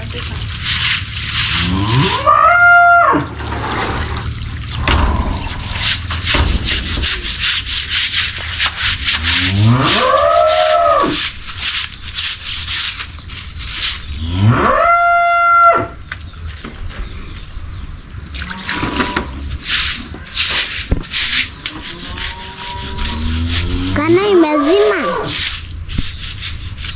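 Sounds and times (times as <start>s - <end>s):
rhythmic scraping strokes: 0.0s - 2.4s, 3.2s - 14.4s, 19.0s - 26.9s
cow mooing: 1.6s - 7.5s, 8.9s - 11.2s, 14.2s - 16.0s, 21.7s - 25.4s.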